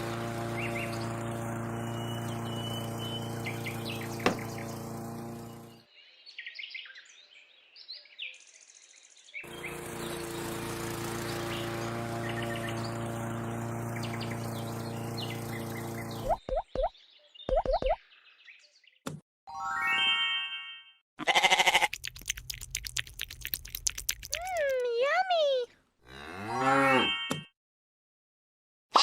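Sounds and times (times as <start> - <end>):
small motor humming: 0.0 - 5.8, 9.4 - 16.4
birds chirping: 0.4 - 19.0.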